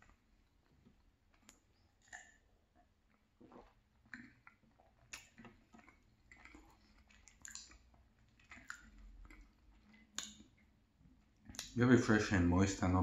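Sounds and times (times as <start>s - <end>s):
close-miked chewing: 0.0s - 12.5s
sharp mouth clicks: 8.5s - 10.6s, 11.5s - 11.8s.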